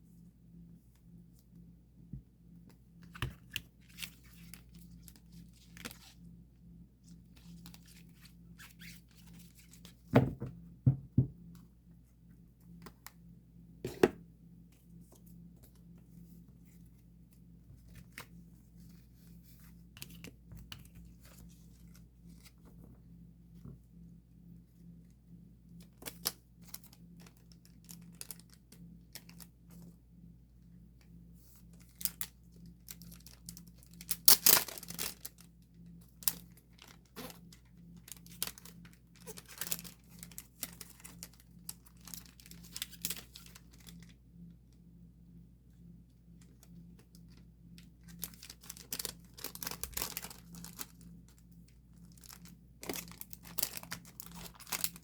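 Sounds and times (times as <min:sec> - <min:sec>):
plastic sleeves crinkling: 0:03.0 - 0:06.3, 0:07.2 - 0:10.1, 0:25.8 - 0:29.5, 0:31.5 - 0:44.1, 0:46.4 - 0:55.0.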